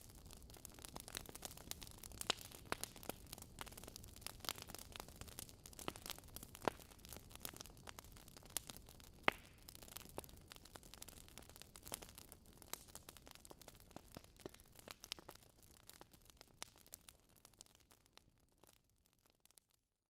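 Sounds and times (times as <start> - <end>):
logs crackling in a fire: 0.0 - 19.7.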